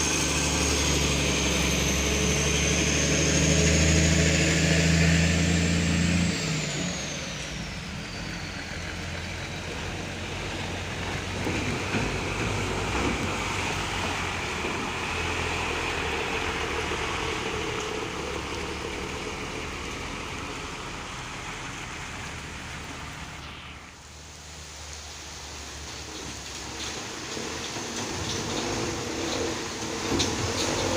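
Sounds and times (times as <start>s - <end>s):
vehicle engine running low: 0.0s - 30.9s
steady hiss: 13.3s - 30.9s.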